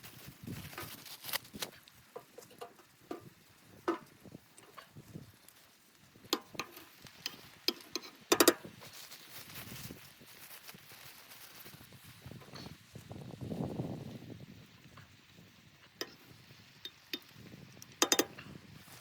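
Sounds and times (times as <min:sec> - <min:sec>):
sharp clicks and light knocks: 0:00.7 - 0:05.6, 0:06.2 - 0:08.7, 0:16.8 - 0:18.5.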